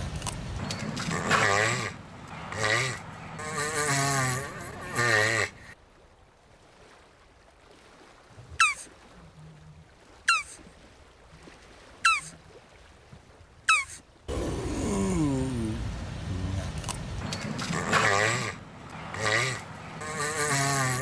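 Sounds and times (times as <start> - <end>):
tortoise wavering call: 8.6 - 8.9, 10.3 - 10.6, 12.0 - 12.4, 13.7 - 21.0.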